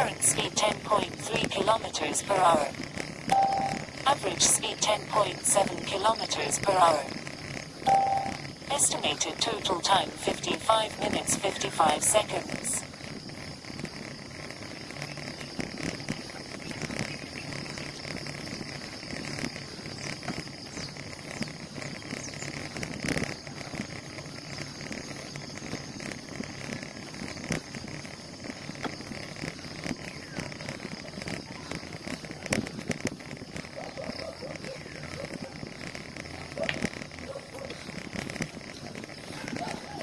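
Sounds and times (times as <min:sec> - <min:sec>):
wind: 0:00.0 - 0:40.0
bicycle rolling noise: 0:02.5 - 0:04.1, 0:06.9 - 0:08.7, 0:12.8 - 0:40.0
high insect drone: 0:12.4 - 0:40.0.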